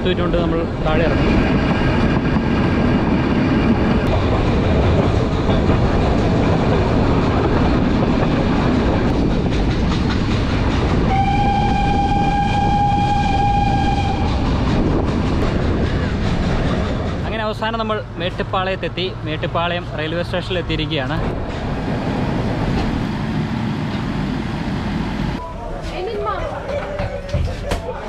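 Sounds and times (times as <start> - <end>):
train wheels rattling on track: 0.0 - 25.4
locomotive whistle: 11.1 - 14.4.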